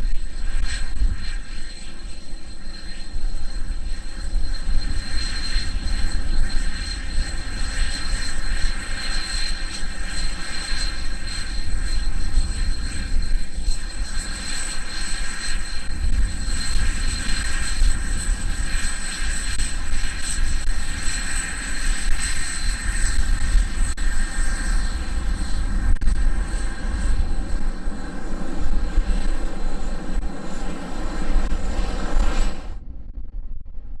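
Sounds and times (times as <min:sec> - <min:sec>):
jet engines whining: 0:00.0 - 0:34.0
wind buffeting microphone: 0:15.5 - 0:34.0.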